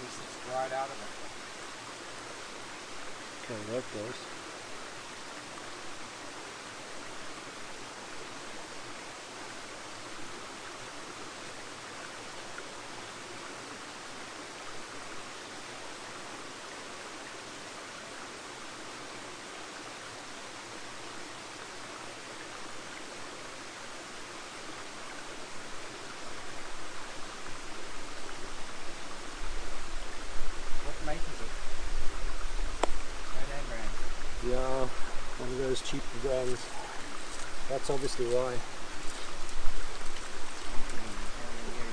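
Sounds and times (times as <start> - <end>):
stream flowing over rocks: 0.0 - 41.9.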